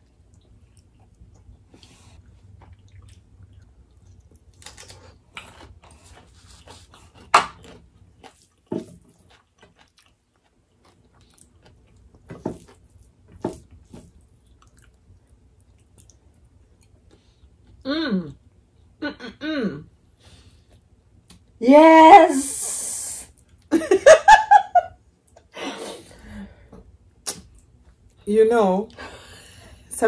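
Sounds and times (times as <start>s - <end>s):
chewing and lip smacking: 0.0s - 13.1s, 13.8s - 17.8s.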